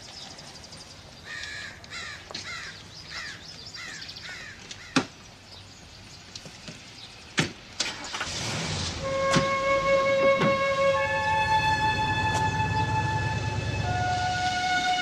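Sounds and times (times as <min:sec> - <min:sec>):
bird calling: 0:01.2 - 0:05.2.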